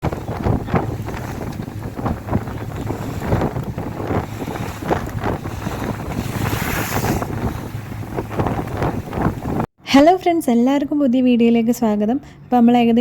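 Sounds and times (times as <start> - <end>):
low rumble: 0.0 - 9.7
sea water rushing: 0.0 - 9.7
wind buffeting microphone: 0.0 - 9.7
hissing surge of spray: 4.3 - 8.1.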